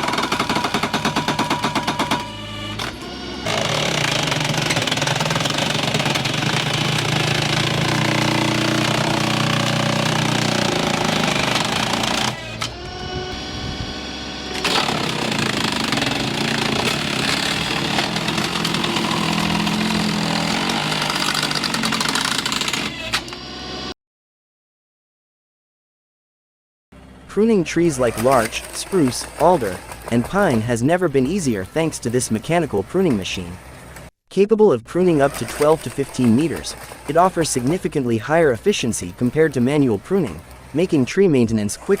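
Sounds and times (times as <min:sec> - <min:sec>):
machine engine running loudly: 0:00.0 - 0:23.8.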